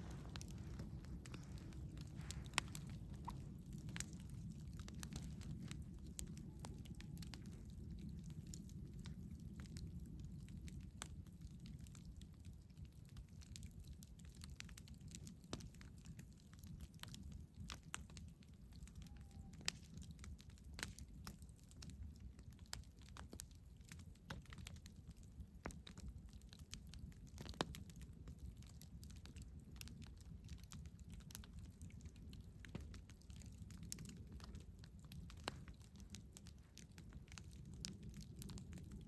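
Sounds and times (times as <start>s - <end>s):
low steady rumble: 0.0s - 12.6s
campfire crackling and popping: 0.0s - 39.0s.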